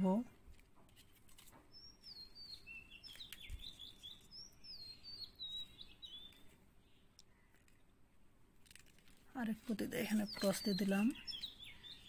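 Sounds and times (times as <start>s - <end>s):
songbird whistling notes: 1.8s - 6.4s, 10.3s - 12.0s.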